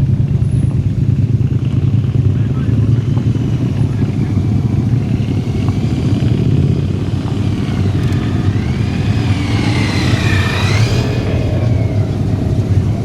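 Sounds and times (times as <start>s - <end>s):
motorcycle engine running: 0.0s - 13.0s
high whine: 2.9s - 13.0s.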